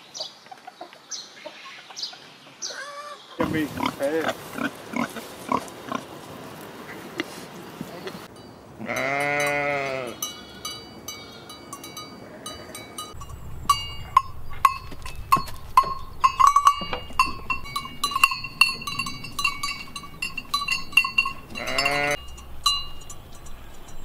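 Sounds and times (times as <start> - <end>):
sheep bells clanking: 8.2 - 24.0
sheep bleating: 8.8 - 10.7, 21.4 - 22.2.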